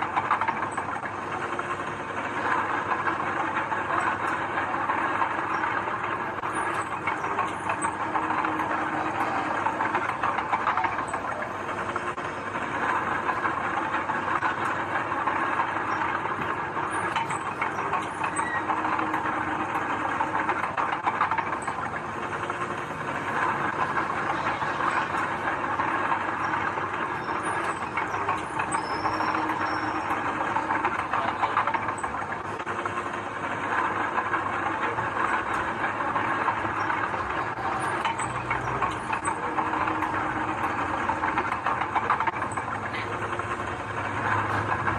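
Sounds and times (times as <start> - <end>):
bulldozer diesel engine running: 0.0 - 33.4
crawler tracks clanking: 0.0 - 44.9.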